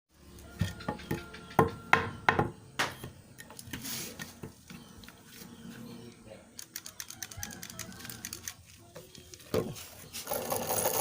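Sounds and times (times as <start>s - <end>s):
sharp knocks and clanks: 0.5s - 3.2s.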